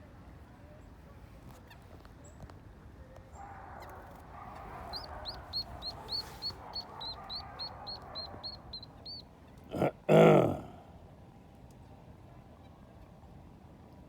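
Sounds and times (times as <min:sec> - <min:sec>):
birds chattering: 0:03.8 - 0:10.6
sharp repeated bird chirps: 0:04.8 - 0:09.2.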